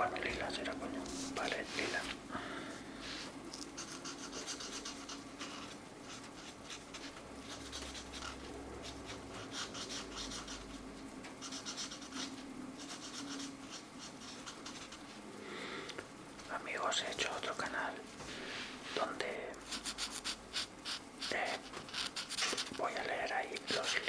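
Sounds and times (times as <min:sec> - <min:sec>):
felt-tip marker scratching on paper: 0:03.8 - 0:10.7, 0:11.4 - 0:15.1, 0:19.6 - 0:24.0.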